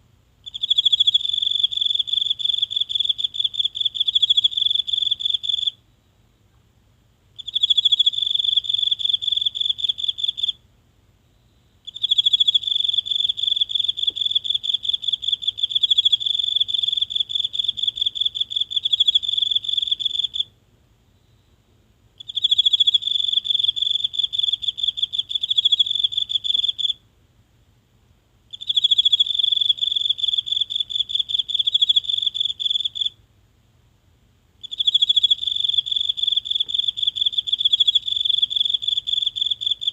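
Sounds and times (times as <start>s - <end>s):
insect trilling: 11.9s - 20.5s, 34.6s - 39.9s.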